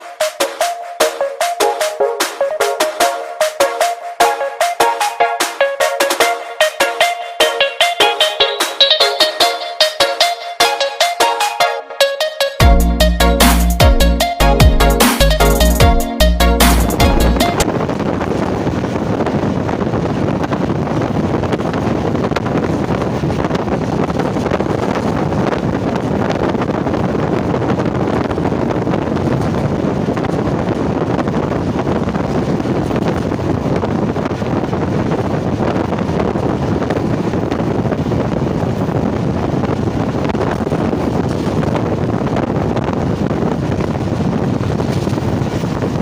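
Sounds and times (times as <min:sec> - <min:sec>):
passenger train rushing: 0:16.6 - 0:46.0
wind buffeting microphone: 0:16.8 - 0:46.0.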